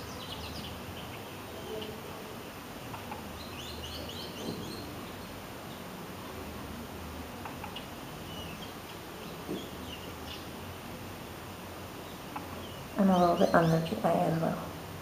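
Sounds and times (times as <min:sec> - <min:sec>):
small bird chirping: 0:00.0 - 0:02.0, 0:02.9 - 0:05.9, 0:07.4 - 0:10.6, 0:12.0 - 0:14.5
steady hiss: 0:00.0 - 0:15.0.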